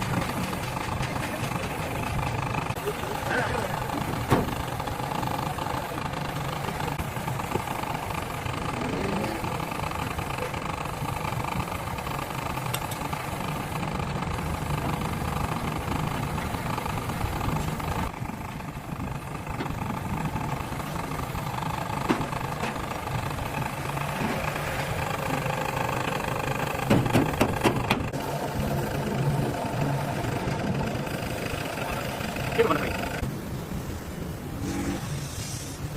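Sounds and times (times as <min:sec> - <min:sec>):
engine idling: 0:00.0 - 0:35.9
sharp knocks: 0:26.8 - 0:28.0.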